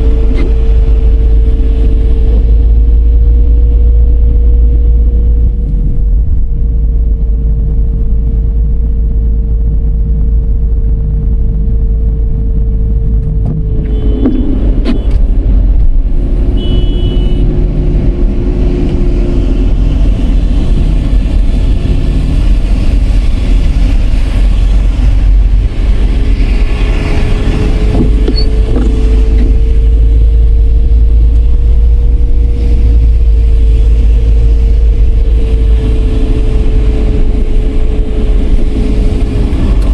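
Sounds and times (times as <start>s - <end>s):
car engine and road noise: 0.0s - 39.9s
steady whine: 0.0s - 39.9s.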